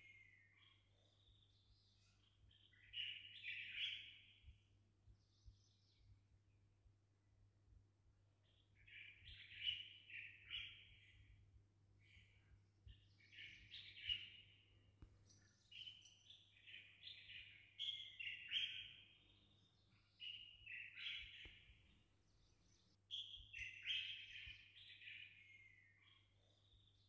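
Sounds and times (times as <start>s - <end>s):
songbird chirping and twittering: 0.0s - 27.0s.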